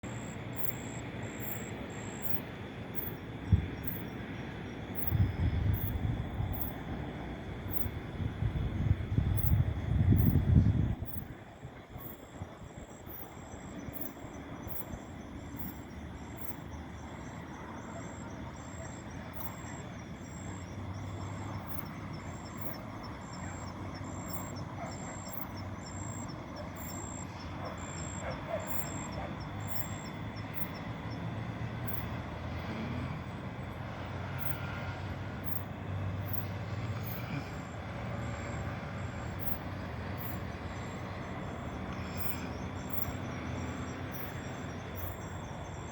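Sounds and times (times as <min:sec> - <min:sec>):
insects chirping: 0:00.0 - 0:45.9
low steady rumble: 0:00.0 - 0:45.9.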